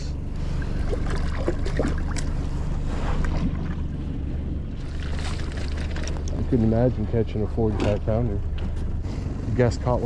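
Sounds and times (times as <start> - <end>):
boat motor running: 0.0 - 10.0.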